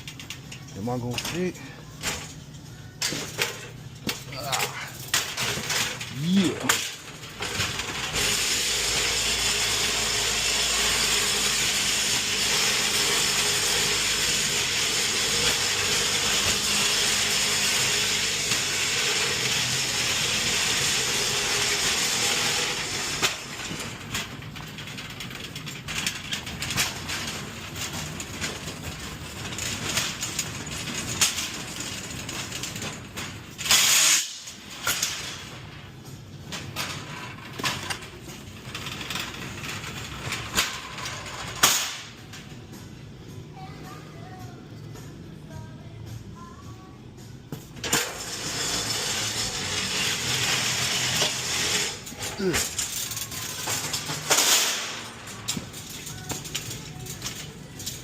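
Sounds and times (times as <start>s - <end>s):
cart wheels rattling and clicking: 22.3s - 33.6s
sharp metal clatter: 47.8s - 58.0s.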